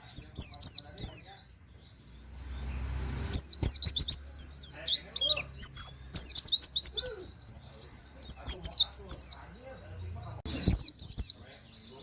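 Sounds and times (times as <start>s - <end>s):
bird chirping and whistling: 2.4s - 9.4s, 10.5s - 11.6s.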